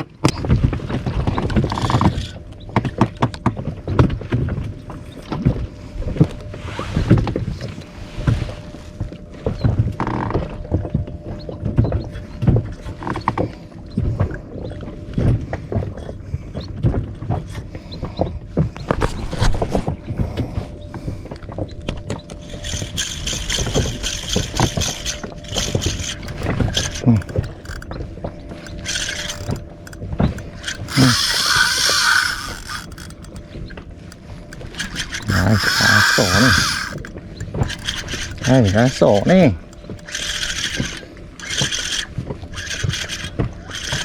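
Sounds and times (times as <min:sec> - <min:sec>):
fishing reel whirring: 0:01.0 - 0:03.3, 0:11.3 - 0:15.0, 0:21.7 - 0:44.0.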